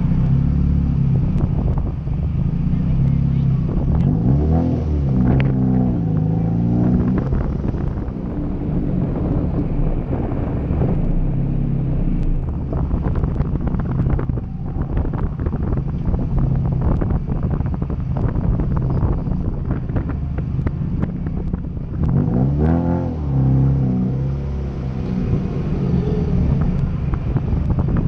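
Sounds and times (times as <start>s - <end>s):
car engine idling: 0.0s - 4.0s.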